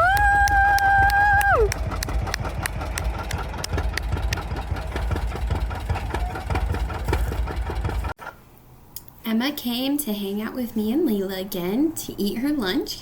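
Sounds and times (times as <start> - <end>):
tractor engine rumbling: 0.0 - 8.2.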